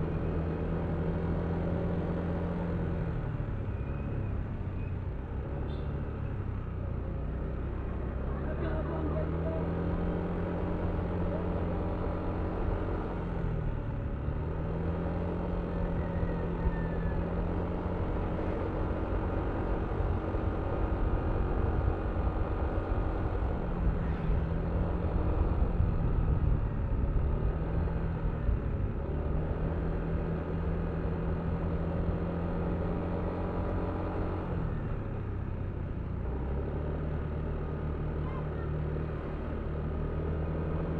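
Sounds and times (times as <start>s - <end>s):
low wind rumble: 15.8s - 32.6s.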